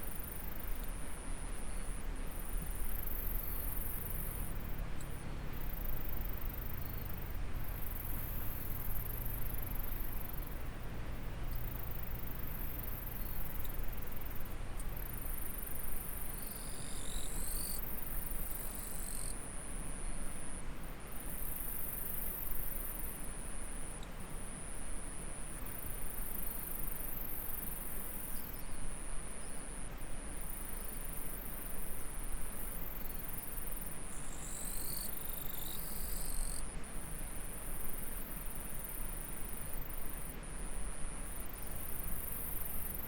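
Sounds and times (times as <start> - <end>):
insects trilling: 5.6 - 19.4, 32.5 - 40.4.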